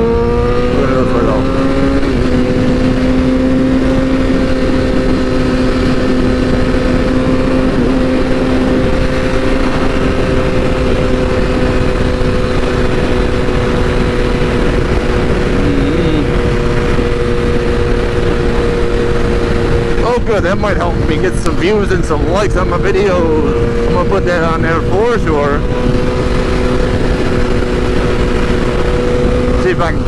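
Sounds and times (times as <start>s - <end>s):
motorcycle engine running: 0.0s - 30.0s
wind noise: 0.0s - 30.0s.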